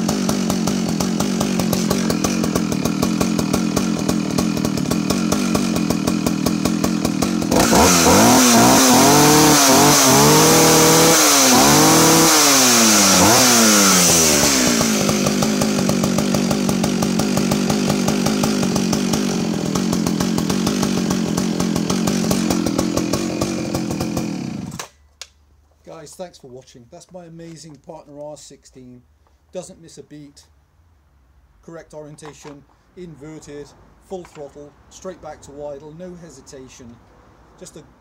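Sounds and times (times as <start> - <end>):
chainsaw idling and revving: 0.0 - 25.0.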